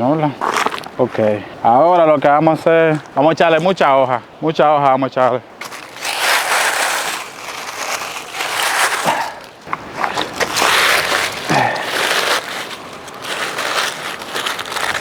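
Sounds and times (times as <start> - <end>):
dry leaves rustling and crunching: 5.6 - 15.0.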